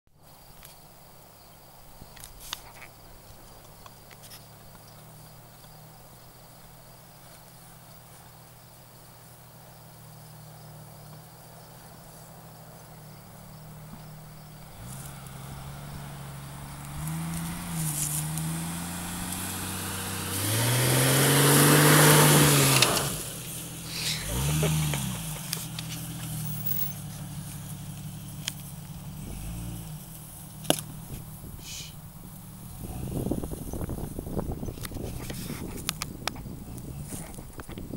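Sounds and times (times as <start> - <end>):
off-road vehicle engine revving: 8.4 - 37.5
noisy rushing: 14.6 - 26.7.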